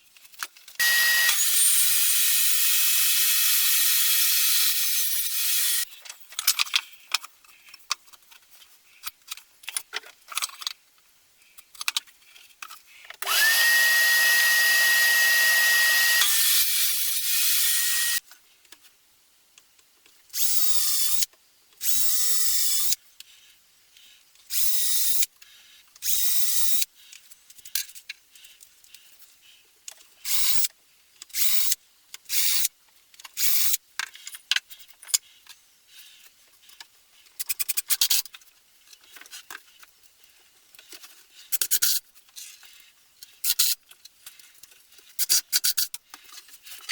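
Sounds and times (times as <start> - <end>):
power drill running: 0.8 - 5.8, 13.2 - 18.2.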